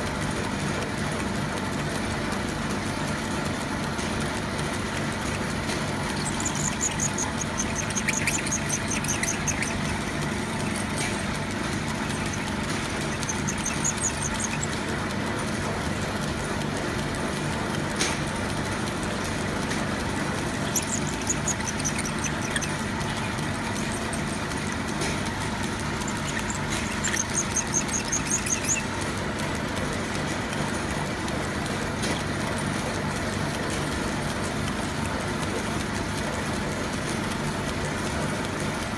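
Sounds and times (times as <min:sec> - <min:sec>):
lathe motor hum: 0:00.0 - 0:38.9
high-pitched squeaking of cutting tool: 0:05.7 - 0:15.8, 0:19.8 - 0:30.2.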